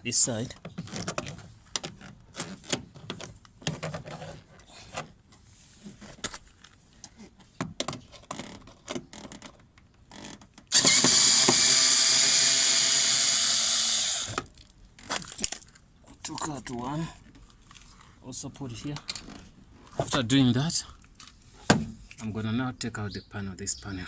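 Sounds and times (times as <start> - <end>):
cordless drill whirring: 10.7 - 14.5.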